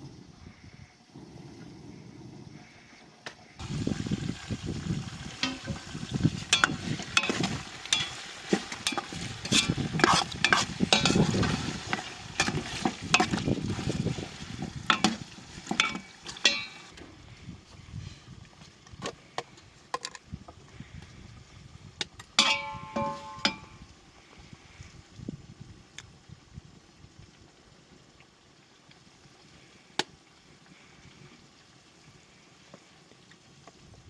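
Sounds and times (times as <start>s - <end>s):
food frying: 3.6s - 17.0s
utensil scraping in cooking pot: 3.6s - 17.0s, 22.4s - 23.7s.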